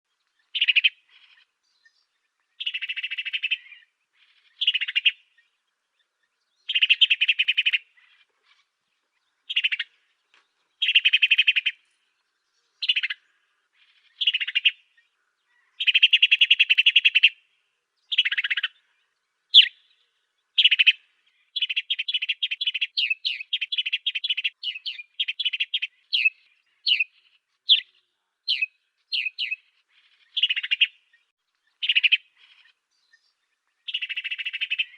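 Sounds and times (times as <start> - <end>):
sparrow chirping: 0.1 - 34.9.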